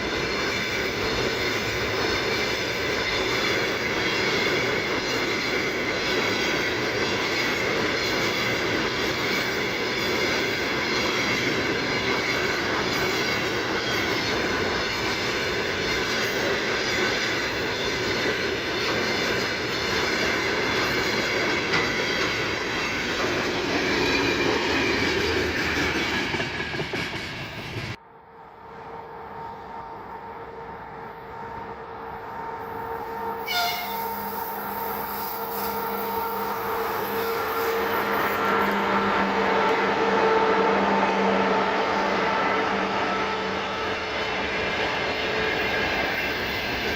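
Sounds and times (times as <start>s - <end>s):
freight train wagons rolling past: 0.0s - 28.0s, 28.6s - 46.9s
wheels clickety-clack: 0.0s - 28.0s.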